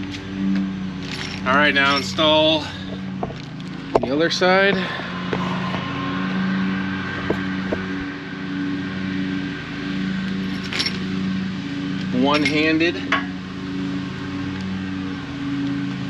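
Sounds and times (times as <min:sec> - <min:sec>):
engine-like hum: 0:00.0 - 0:16.0
metallic clinks of tools: 0:12.3 - 0:13.3.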